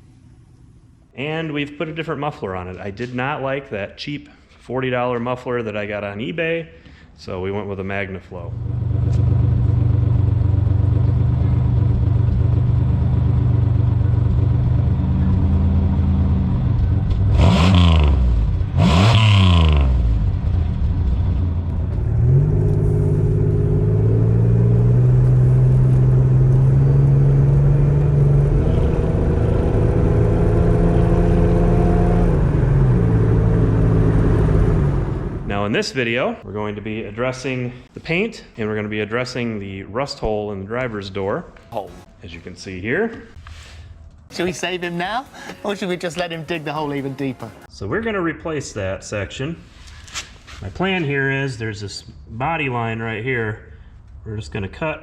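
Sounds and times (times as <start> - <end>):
car engine idling and revving: 8.5 - 35.5.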